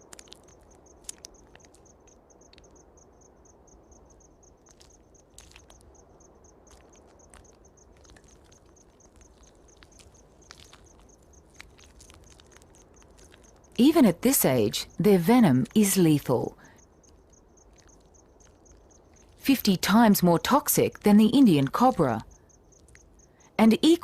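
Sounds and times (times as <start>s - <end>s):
small clicks and rustles: 0.0s - 2.9s, 4.2s - 13.8s, 16.6s - 19.4s, 22.2s - 23.6s
faint insect chirping: 0.0s - 24.0s.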